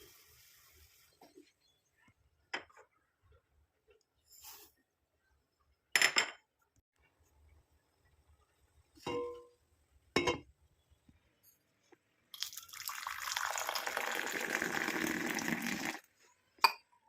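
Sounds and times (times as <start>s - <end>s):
tea pouring into a cup: 12.4s - 16.1s.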